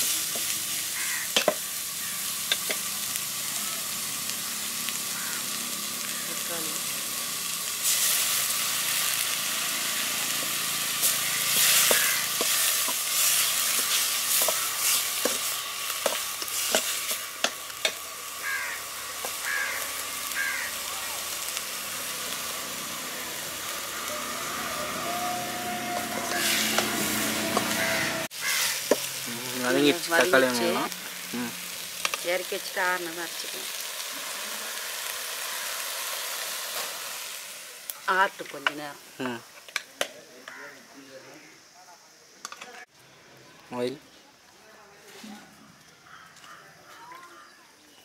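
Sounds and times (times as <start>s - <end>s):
vegetables sizzling in hot oil: 0.0s - 41.3s
bird calling: 0.7s - 6.6s, 11.0s - 31.7s.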